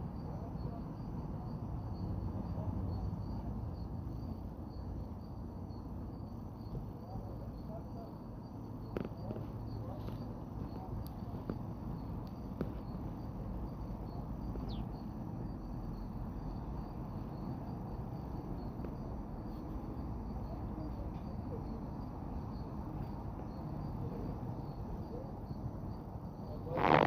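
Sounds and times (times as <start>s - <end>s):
high insect trill: 0.0s - 27.0s
bird chirps: 14.5s - 15.0s.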